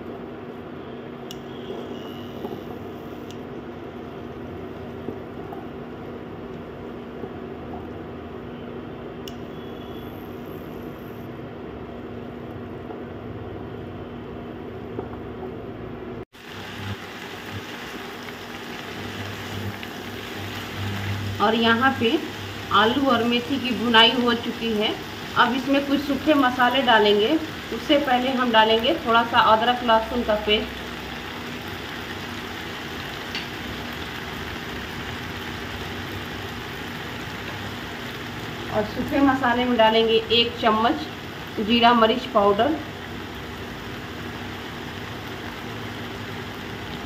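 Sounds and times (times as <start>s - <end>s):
faint steady hum: 0.0s - 47.0s
light tick: 9.2s - 9.4s
potatoes sizzling in oil: 16.4s - 47.0s.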